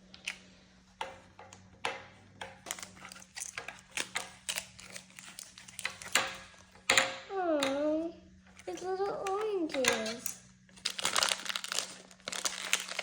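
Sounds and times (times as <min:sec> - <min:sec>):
faint crinkling: 0:08.5 - 0:13.0.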